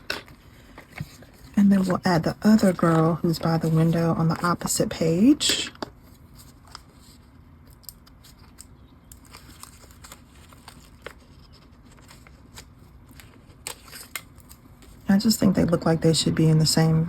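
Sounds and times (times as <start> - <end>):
sticker paper clicks and rustles: 7.7 - 15.0.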